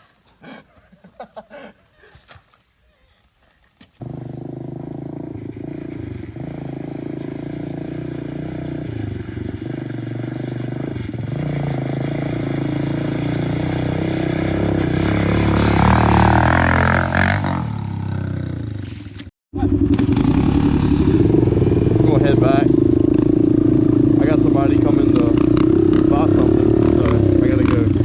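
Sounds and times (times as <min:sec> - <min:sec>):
dirt bike engine revving: 0:04.0 - 0:28.0.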